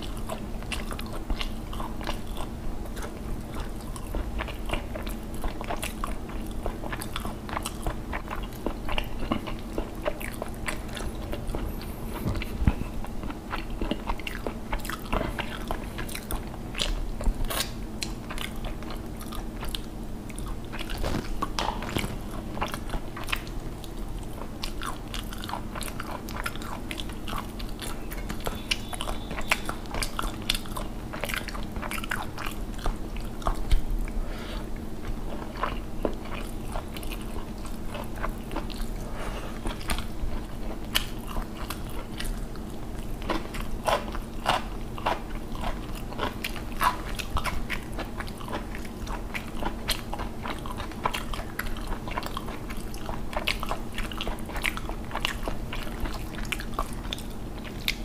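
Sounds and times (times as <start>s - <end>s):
close-miked chewing: 0.0s - 58.0s
steady low hum: 0.0s - 58.0s
wet mouth clicks and crunches: 0.2s - 34.2s.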